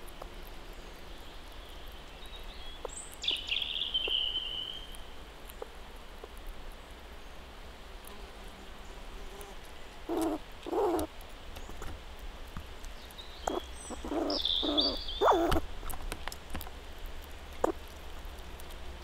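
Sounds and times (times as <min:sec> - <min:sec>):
bird song phrase: 0:00.7 - 0:05.0, 0:13.0 - 0:15.5
birds calling: 0:00.8 - 0:05.7, 0:10.1 - 0:11.9, 0:12.9 - 0:15.7.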